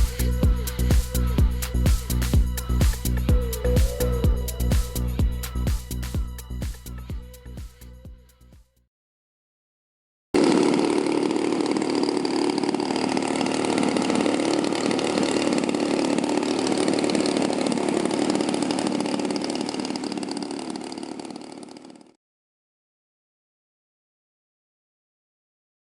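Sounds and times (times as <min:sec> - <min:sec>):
model plane petrol engine running: 0:00.0 - 0:04.8, 0:10.4 - 0:22.2.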